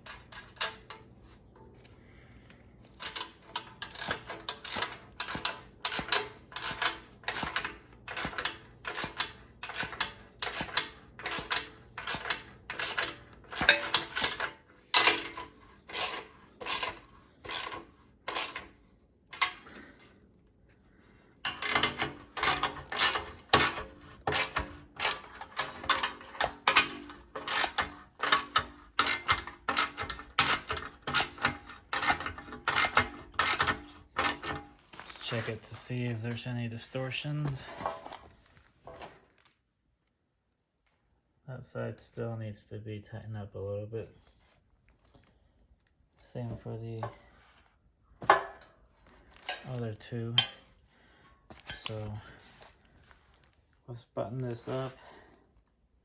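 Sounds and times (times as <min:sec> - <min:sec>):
ratchet wrench clicking: 0:03.0 - 0:18.6, 0:21.5 - 0:34.4.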